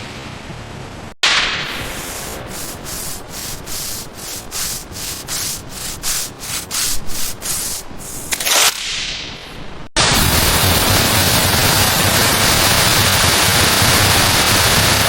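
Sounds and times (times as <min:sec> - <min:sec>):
hissing rubbing strokes: 0:01.2 - 0:09.9.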